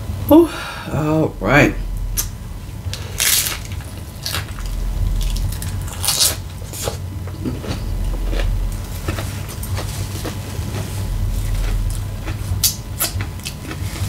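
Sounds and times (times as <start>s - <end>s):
wet chewing: 2.2s - 14.0s
tortilla chip crunching: 2.9s - 14.0s.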